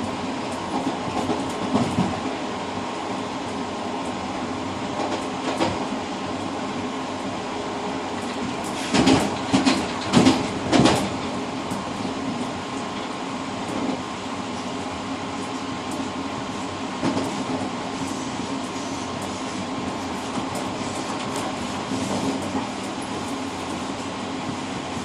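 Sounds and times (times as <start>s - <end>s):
train rolling rumble: 0.0s - 25.0s
wheels clacking over rail joints: 8.2s - 12.4s.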